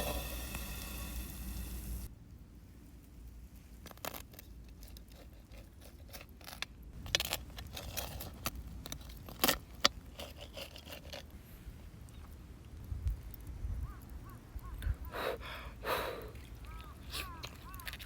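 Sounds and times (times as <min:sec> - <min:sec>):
clicks and knocks of handling: 0:03.8 - 0:11.4, 0:16.7 - 0:18.0.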